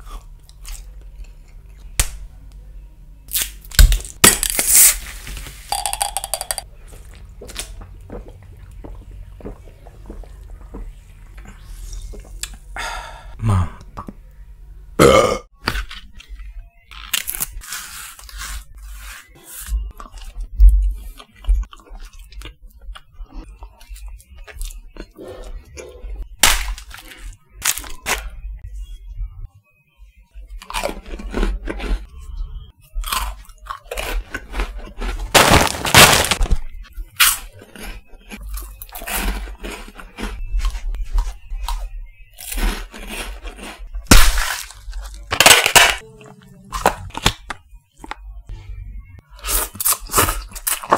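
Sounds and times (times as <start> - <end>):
snack food crunching: 33.0 - 36.6, 37.2 - 48.2, 49.4 - 50.9.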